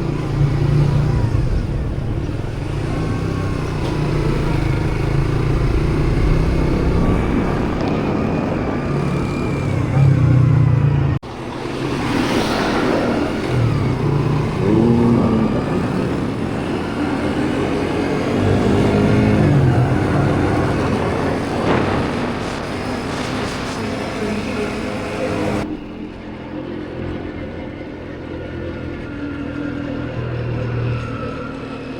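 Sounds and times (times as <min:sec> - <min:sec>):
motorbike engine running: 0:00.0 - 0:23.5
wind rush: 0:04.5 - 0:10.4, 0:11.3 - 0:25.7.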